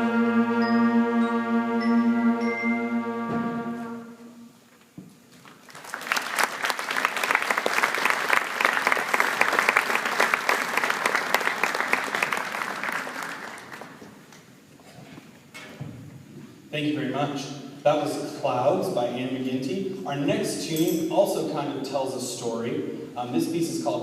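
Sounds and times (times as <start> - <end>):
audience applauding: 5.4 - 14.2.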